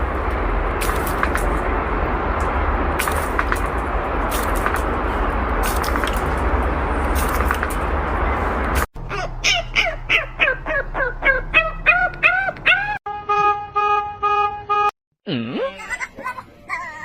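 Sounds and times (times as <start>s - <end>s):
animal squeals: 9.1s - 13.0s.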